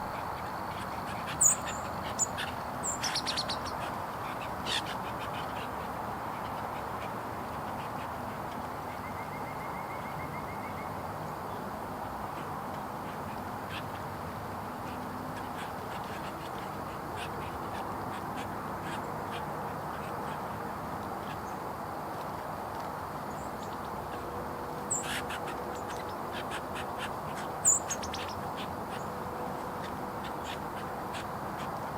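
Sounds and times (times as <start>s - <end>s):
songbird chip calls: 0.0s - 5.8s, 24.8s - 31.8s
songbirds chirping: 0.0s - 31.9s
steady background hum: 0.0s - 31.9s.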